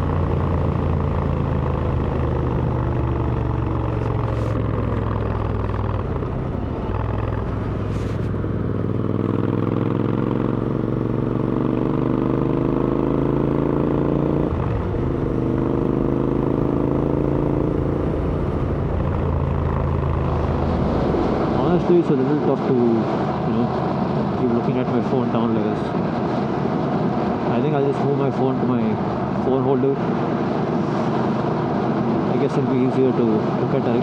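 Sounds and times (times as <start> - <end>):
motorcycle engine revving: 0.0 - 22.3.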